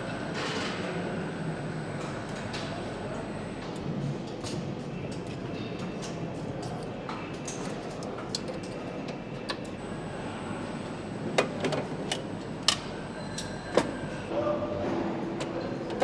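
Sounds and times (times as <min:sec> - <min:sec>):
machinery hum with high whine: 0:00.0 - 0:16.0.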